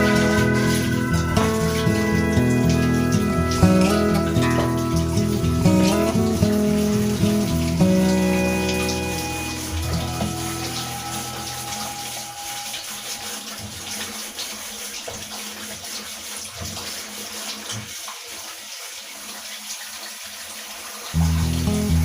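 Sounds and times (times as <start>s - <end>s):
background music: 0.0s - 13.4s, 21.2s - 22.0s
running water: 0.0s - 22.0s.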